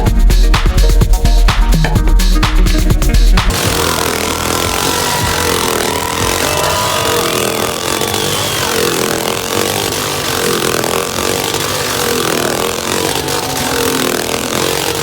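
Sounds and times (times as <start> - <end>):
motorcycle engine rising and falling: 3.0 - 15.0.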